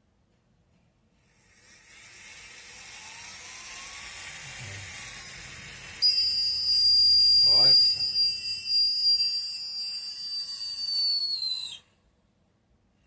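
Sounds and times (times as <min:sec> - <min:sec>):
piercing high-pitched squeal: 0:01.2 - 0:12.0
electric motor whining: 0:01.4 - 0:11.8.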